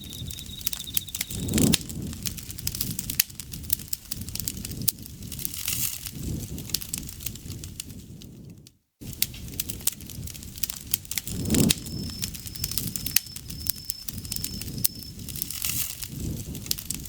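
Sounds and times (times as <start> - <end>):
insect trilling: 0.0 - 1.7, 11.3 - 15.5
campfire crackling and popping: 0.0 - 17.0.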